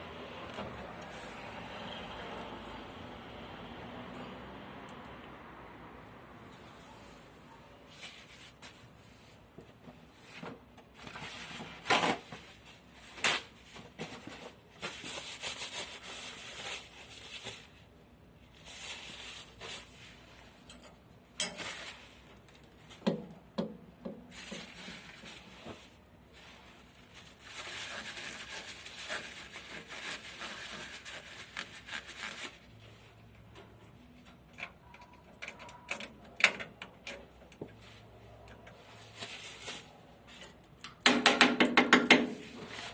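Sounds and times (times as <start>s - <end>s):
rustling: 24.2s - 34.2s, 37.7s - 40.6s.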